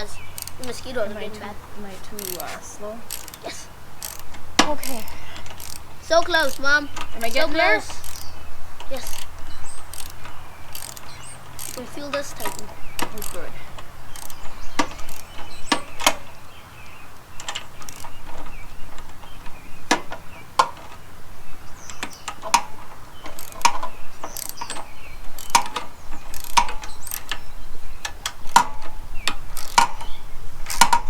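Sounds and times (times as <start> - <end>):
ratchet wrench clicking: 0.0 - 1.0, 2.1 - 16.4, 17.1 - 21.0, 21.8 - 31.0.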